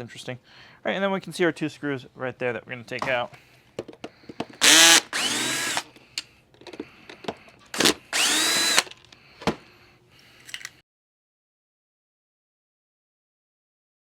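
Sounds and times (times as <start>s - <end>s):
power drill motor whirring: 4.6s - 5.9s, 7.7s - 9.1s.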